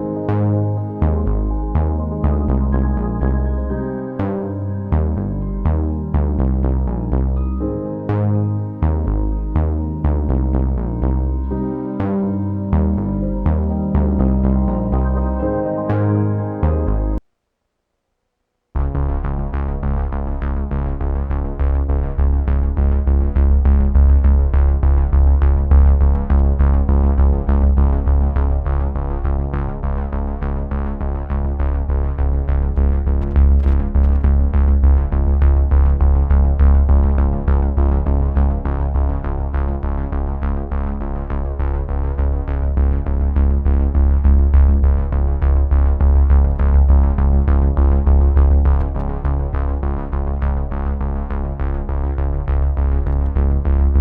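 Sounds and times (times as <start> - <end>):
electronic music: 0.0 - 17.2.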